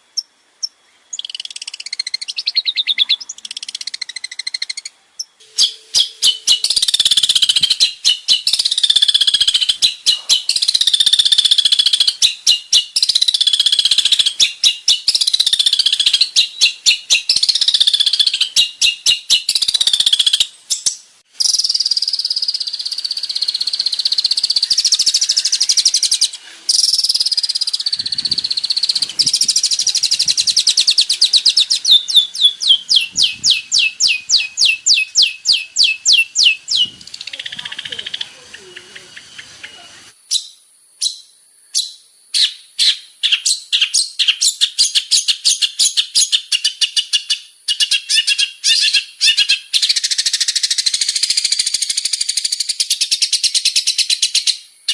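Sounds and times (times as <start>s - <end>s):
shrike singing: 0.1s - 42.5s.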